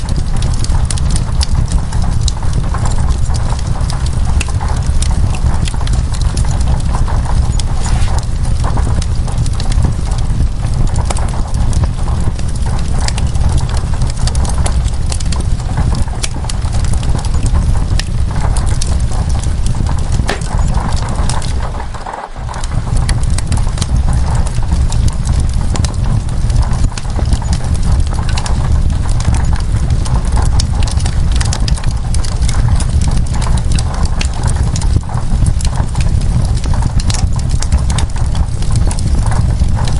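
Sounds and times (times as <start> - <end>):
deep low rumble: 0.0 - 30.6
rain: 0.0 - 39.9
wood fire crackling and popping: 0.0 - 39.9.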